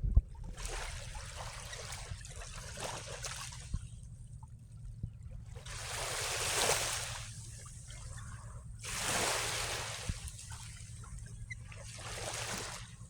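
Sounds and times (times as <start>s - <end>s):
low rumble: 0.0s - 12.0s
small waves washing at shore: 5.5s - 13.0s.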